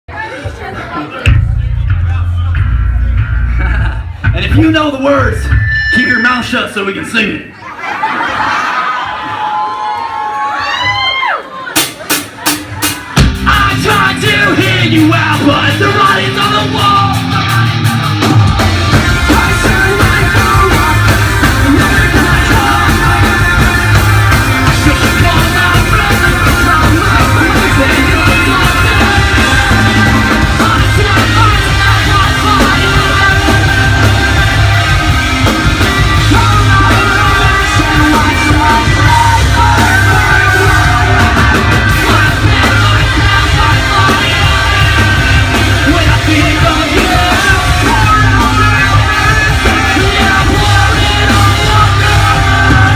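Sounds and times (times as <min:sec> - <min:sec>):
rock band playing live: 0:00.2 - 0:52.9
person singing and yelling: 0:13.4 - 0:52.9.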